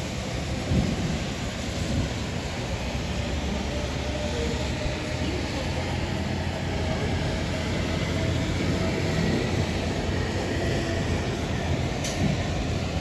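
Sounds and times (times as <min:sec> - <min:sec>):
wind and rain rushing: 0:00.0 - 0:04.0.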